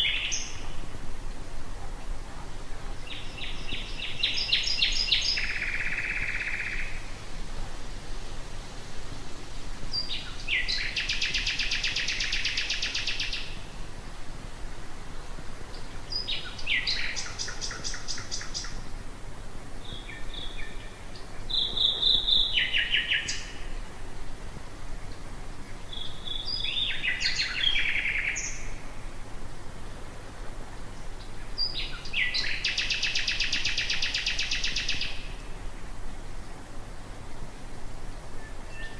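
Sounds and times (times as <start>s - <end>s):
nightingale singing: 0.0s - 0.9s, 2.8s - 7.1s, 9.9s - 13.8s, 15.7s - 18.9s, 19.8s - 23.9s, 25.1s - 29.0s, 31.0s - 35.7s, 38.3s - 38.9s.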